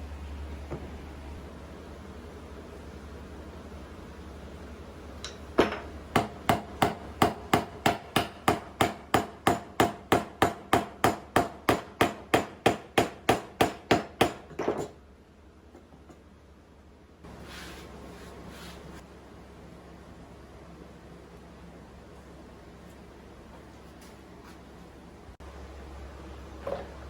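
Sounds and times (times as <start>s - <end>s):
hammer striking wood: 5.6s - 14.9s.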